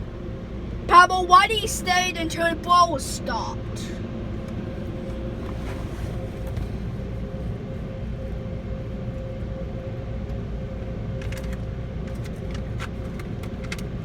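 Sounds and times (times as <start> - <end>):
car idling heard from cabin: 0.9 - 9.9.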